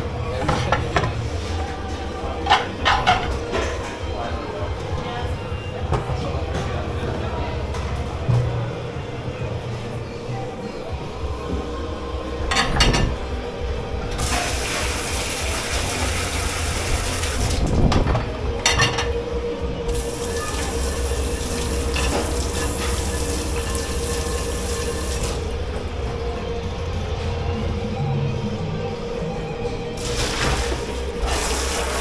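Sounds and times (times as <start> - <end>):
crockery and utensils clattering: 0.0 - 5.1, 12.4 - 25.8
water running into a sink: 14.2 - 18.1, 19.9 - 25.5, 30.0 - 32.0.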